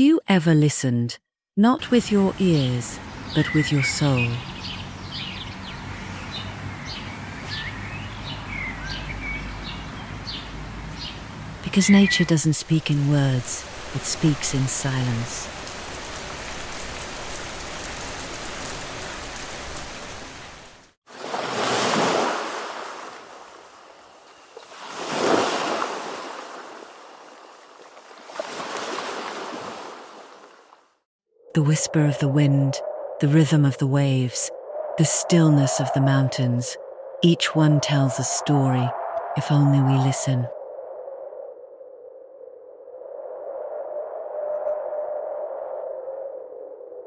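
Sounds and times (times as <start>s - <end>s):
songbirds chirping: 1.8s - 20.8s, 31.6s - 40.5s
ocean waves breaking: 11.9s - 31.0s.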